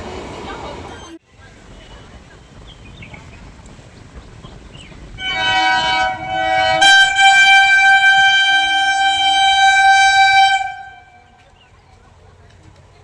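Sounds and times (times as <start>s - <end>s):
train horn blast: 5.2s - 11.5s.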